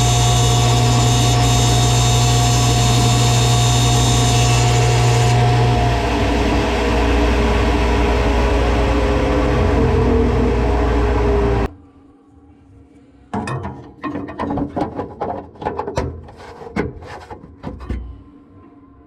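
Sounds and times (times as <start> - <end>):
shop machine running: 0.0 - 11.7
sharp clicks and knocks: 13.4 - 18.1.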